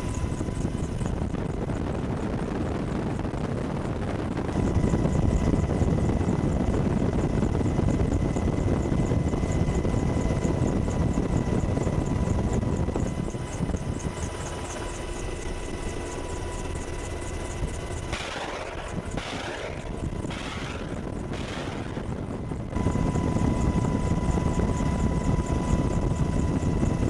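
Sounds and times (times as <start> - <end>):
helicopter rotor rumble: 0.0 - 27.0
faint rhythmic high ticking: 9.3 - 27.0.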